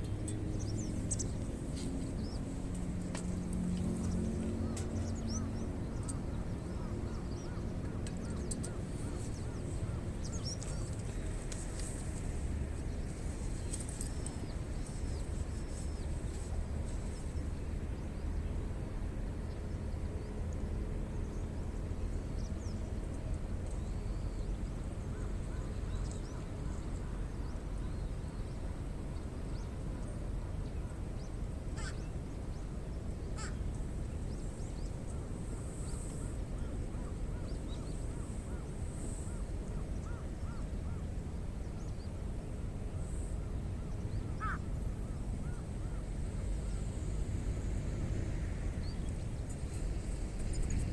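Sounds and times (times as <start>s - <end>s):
steady low rumble: 0.0s - 50.9s
birds chirping and cawing: 31.8s - 32.1s, 33.4s - 33.7s, 44.2s - 44.7s.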